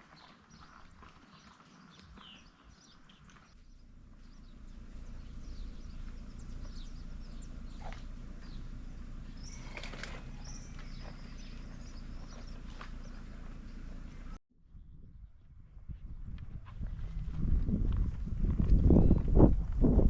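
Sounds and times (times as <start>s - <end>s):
low creek rumble: 2.2s - 14.4s.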